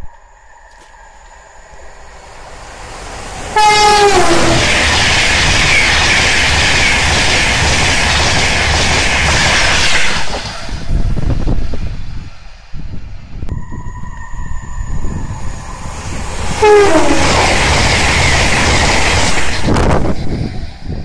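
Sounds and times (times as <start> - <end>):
train passing at speed: 0.0 - 21.0
two-note train horn: 3.5 - 4.8, 16.6 - 17.6.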